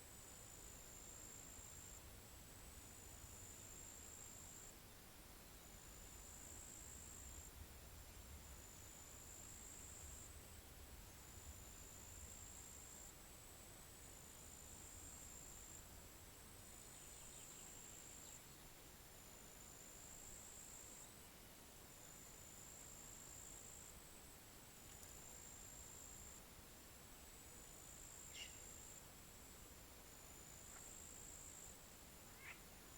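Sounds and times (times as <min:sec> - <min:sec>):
insect trilling: 0:32.3 - 0:32.6.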